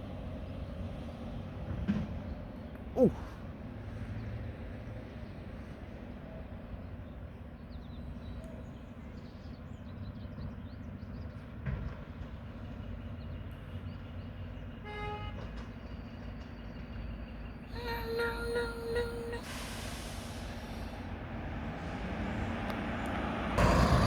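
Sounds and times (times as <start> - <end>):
truck horn toot: 14.8 - 15.5
garbage truck engine rumbling: 17.6 - 24.0.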